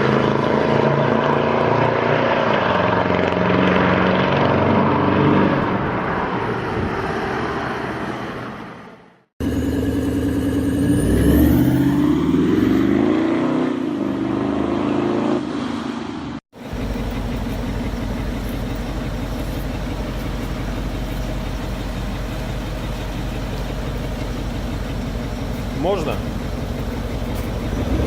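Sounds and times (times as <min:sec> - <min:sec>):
diesel engine revving: 0:00.0 - 0:28.0
diesel engine idling: 0:09.4 - 0:12.5, 0:16.5 - 0:28.0.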